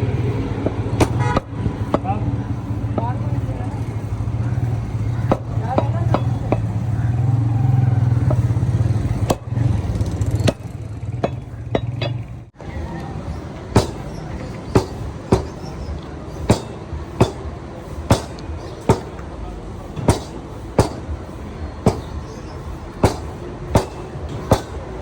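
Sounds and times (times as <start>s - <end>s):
low engine-like hum: 0.0s - 25.0s
cleaver chopping meat: 13.8s - 15.6s, 21.9s - 22.2s.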